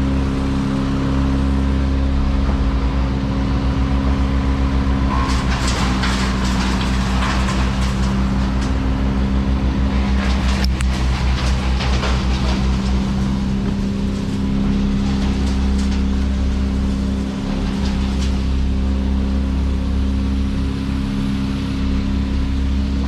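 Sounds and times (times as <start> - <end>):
large engine throbbing: 0.0 - 23.0
rasping noise: 9.8 - 18.8.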